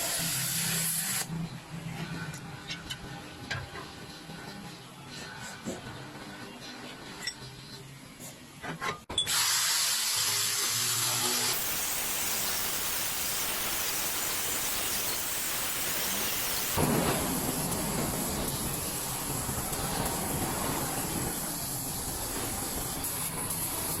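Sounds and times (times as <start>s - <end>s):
power tool running: 9.3s - 17.0s.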